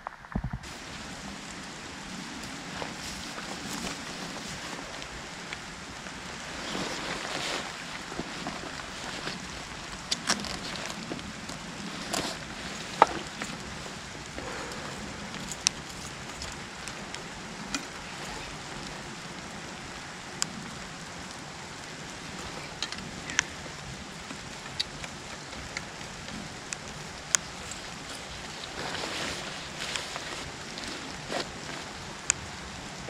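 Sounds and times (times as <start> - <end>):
sharp loud raindrops: 0.0 - 33.0
steady rain in woodland: 0.6 - 33.0.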